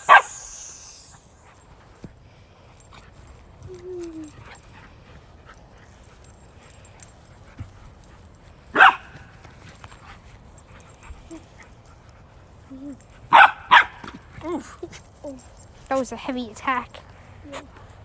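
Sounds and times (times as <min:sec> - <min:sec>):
dog barking: 0:00.0 - 0:00.9, 0:08.8 - 0:09.2, 0:13.3 - 0:14.0
dog whining: 0:00.0 - 0:01.6, 0:03.6 - 0:04.5.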